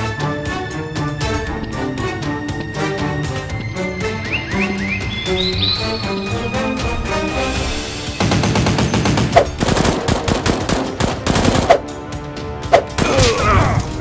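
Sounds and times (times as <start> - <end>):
background music: 0.0 - 14.0
automatic gunfire: 8.2 - 11.8.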